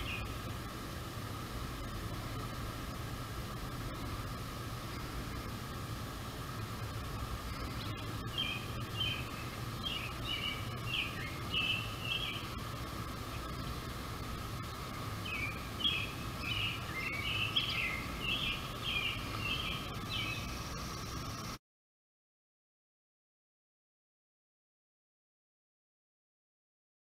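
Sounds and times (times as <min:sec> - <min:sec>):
songbird singing: 0:00.0 - 0:00.8, 0:03.6 - 0:21.6
steady background hum: 0:00.0 - 0:21.6.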